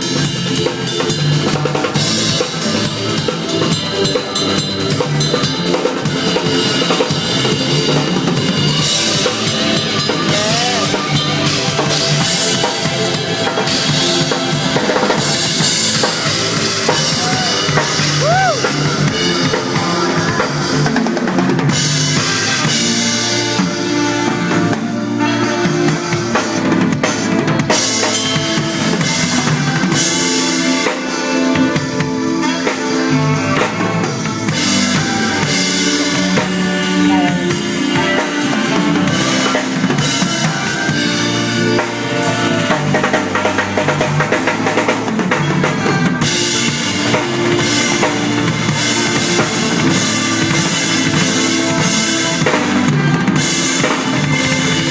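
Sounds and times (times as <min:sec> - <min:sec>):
band backing track: 0:00.0 - 0:54.9
drum kit playing: 0:00.0 - 0:54.9.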